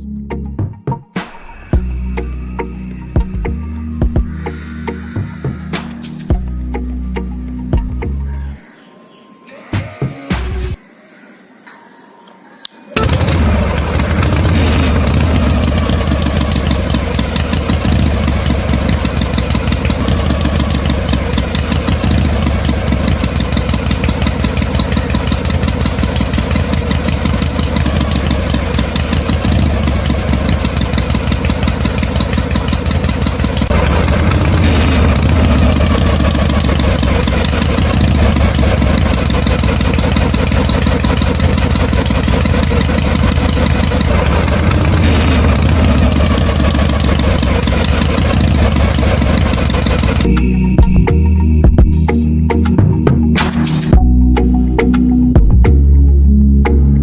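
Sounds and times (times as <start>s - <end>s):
small motor running: 13.0s - 50.8s.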